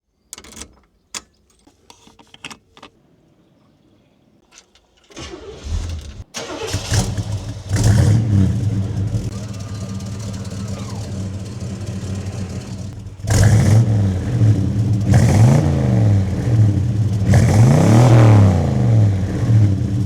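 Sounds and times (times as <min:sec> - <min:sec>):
clicks and knocks: 0:00.3 - 0:03.0
starter cranking: 0:04.5 - 0:15.7
car engine revving deep and loud: 0:06.9 - 0:20.0.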